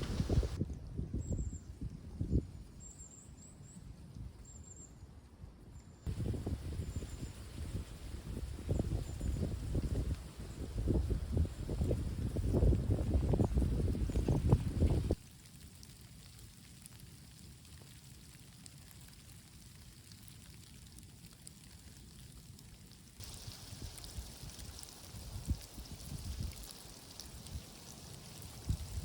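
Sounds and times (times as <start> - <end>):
low outdoor rumble: 0.0 - 0.6
soft low wind gusts: 0.0 - 15.2, 23.2 - 29.0
bright hiss: 23.2 - 29.0.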